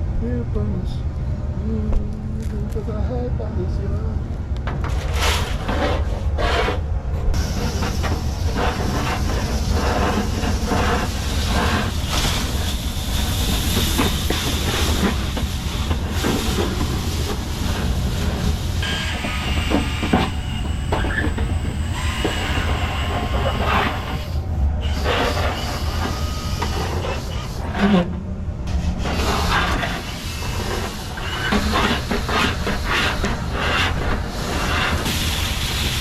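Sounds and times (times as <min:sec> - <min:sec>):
rattling and scraping: 0:04.6 - 0:18.5.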